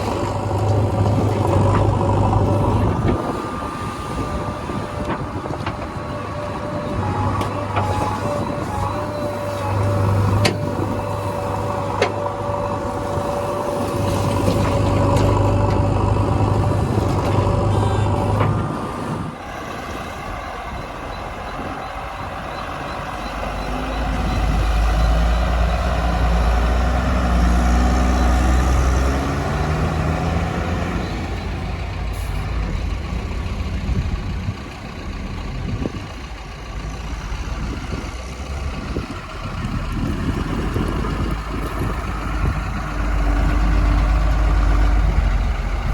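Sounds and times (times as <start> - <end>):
deep low rumble: 0.0 - 4.4
heavy diesel engines running: 0.0 - 45.9.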